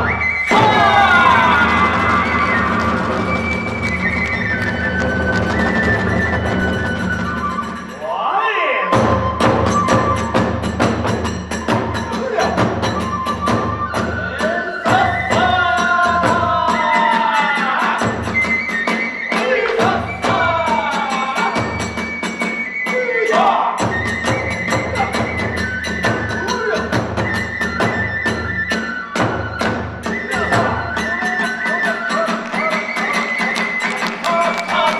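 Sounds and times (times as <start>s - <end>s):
transverse flute melody: 0.0s - 34.9s
drum strikes: 0.5s - 3.9s.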